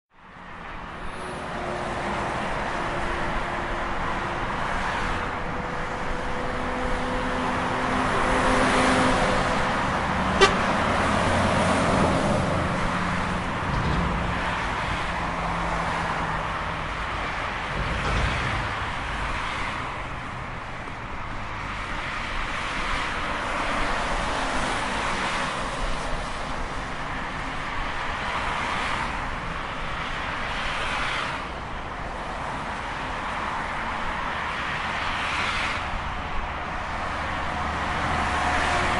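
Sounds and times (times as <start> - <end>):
heavy trucks passing on highway: 0.2 - 38.9
vehicle horn: 10.3 - 10.9.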